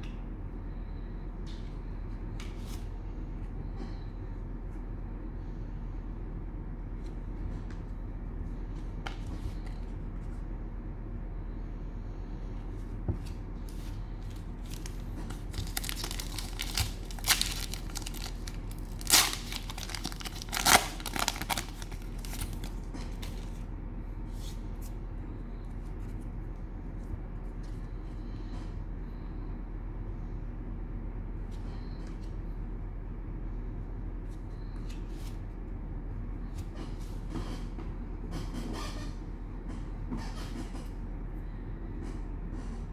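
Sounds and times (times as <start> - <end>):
steady low hum: 0.0 - 42.9
cellophane wrapper tearing and crinkling: 14.6 - 23.6.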